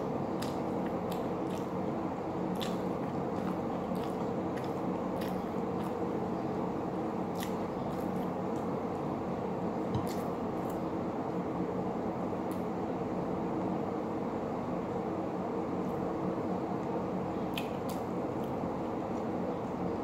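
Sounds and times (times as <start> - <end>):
steady low hum: 0.0 - 20.0
person chewing: 0.3 - 6.3, 7.2 - 8.7, 10.0 - 10.8.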